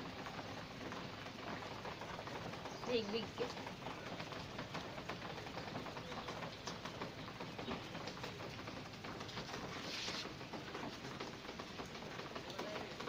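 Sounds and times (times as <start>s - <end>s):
rain pattering: 0.0s - 13.0s.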